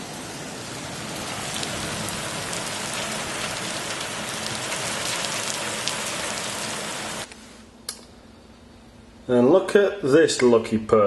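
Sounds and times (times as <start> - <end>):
heavy rain pouring: 0.0 - 7.3.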